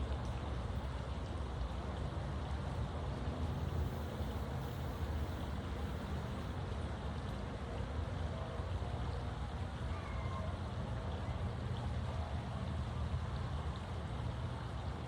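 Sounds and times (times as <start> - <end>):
faint hiss: 3.5 - 6.6.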